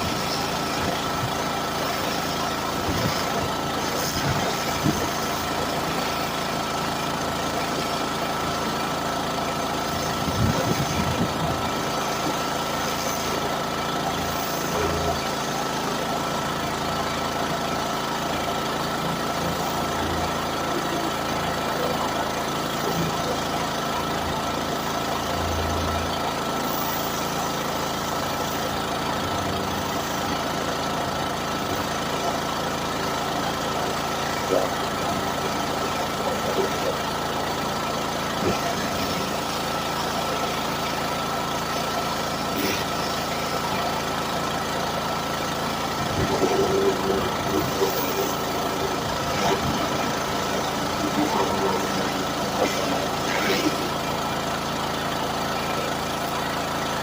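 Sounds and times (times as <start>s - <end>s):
engine running steadily: 0.0s - 57.0s
steady high-pitched tone: 46.0s - 54.0s.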